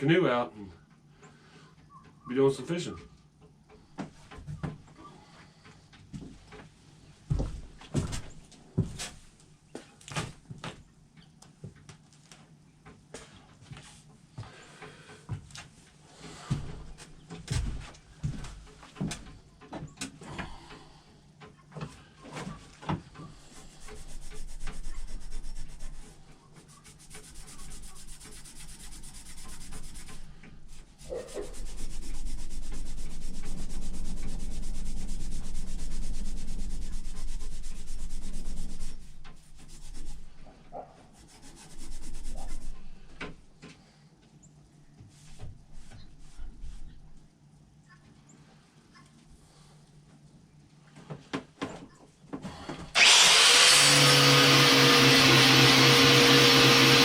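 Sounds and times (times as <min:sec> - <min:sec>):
sanding an axe: 0:23.4 - 0:40.4, 0:41.1 - 0:43.0, 0:53.0 - 0:57.0.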